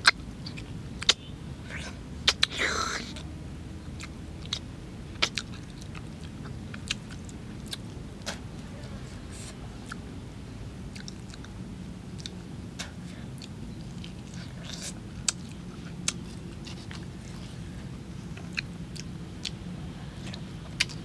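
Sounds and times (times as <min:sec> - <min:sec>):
sharp mouth clicks: 0:00.0 - 0:03.2, 0:05.2 - 0:08.4
person chewing with lip-smacking: 0:00.0 - 0:03.3, 0:03.9 - 0:10.0, 0:10.9 - 0:21.0.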